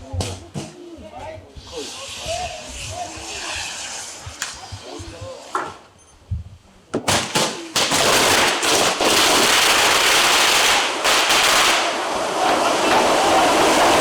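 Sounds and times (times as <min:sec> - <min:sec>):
crackling hiss of burning powder: 0:01.4 - 0:05.9, 0:07.0 - 0:14.0
firework cracks: 0:07.0 - 0:14.0.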